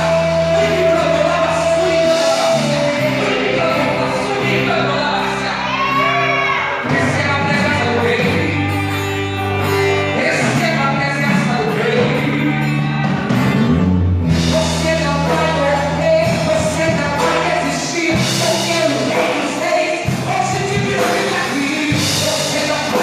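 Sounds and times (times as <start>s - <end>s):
person singing held lines: 0.0s - 13.3s
sustained bass notes: 0.0s - 23.0s
worship band playing: 0.0s - 23.0s.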